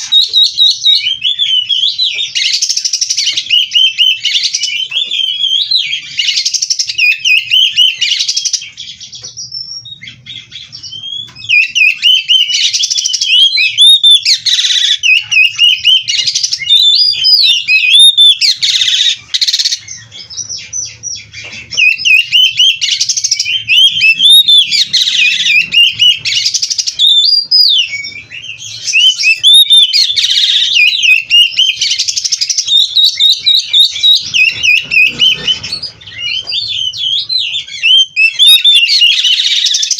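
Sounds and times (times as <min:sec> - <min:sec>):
magpie-robin singing: 0:00.0 - 0:39.9.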